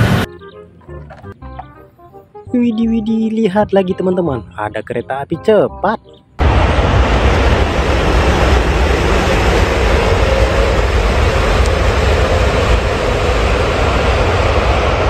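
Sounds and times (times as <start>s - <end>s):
high-speed train rushing rumble: 0.0s - 0.3s, 6.4s - 15.0s.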